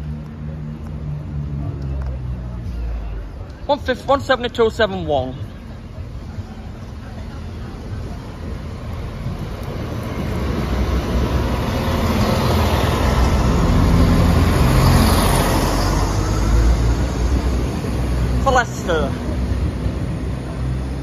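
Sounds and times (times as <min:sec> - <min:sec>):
train engine: 0:06.6 - 0:21.0.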